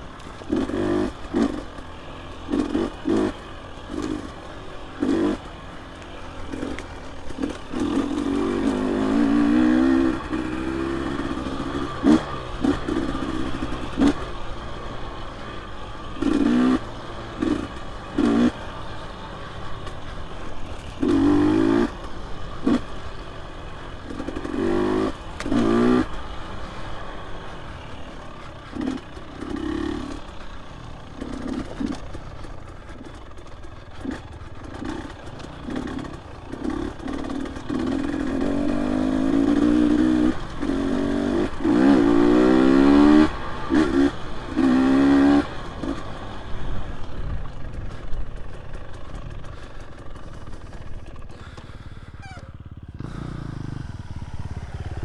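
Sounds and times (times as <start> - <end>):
dirt bike engine revving: 0.0 - 55.0
bike rattling and knocking: 27.6 - 55.0.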